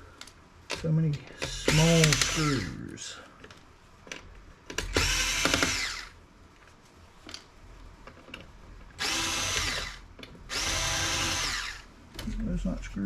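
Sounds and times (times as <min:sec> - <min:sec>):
cordless drill motor whine: 0:01.6 - 0:02.8, 0:04.9 - 0:06.2, 0:09.0 - 0:11.9.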